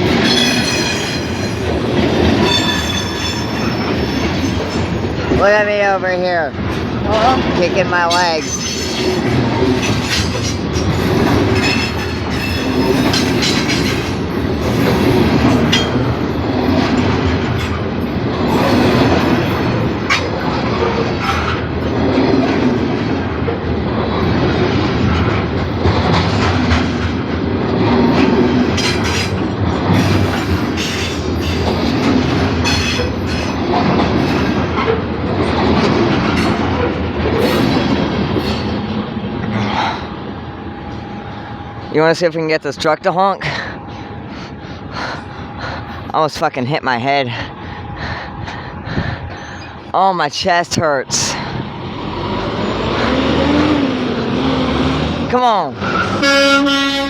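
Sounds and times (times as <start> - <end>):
wheels clicking over rail joints: 6.6 - 39.9
freight cars rumbling past: 50.6 - 57.0.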